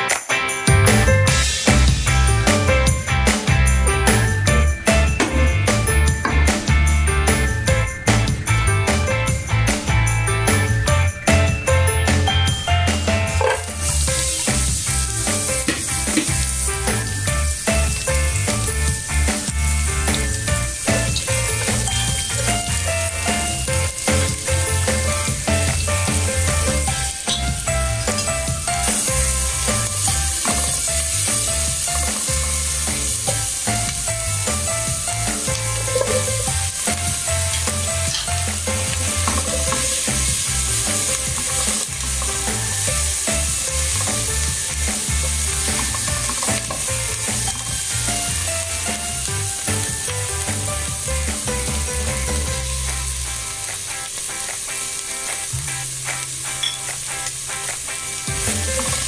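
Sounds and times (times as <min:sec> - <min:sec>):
vegetables sizzling in oil: 0:00.9 - 0:59.0
spatula scraping pan: 0:13.2 - 0:17.0, 0:35.4 - 0:43.3.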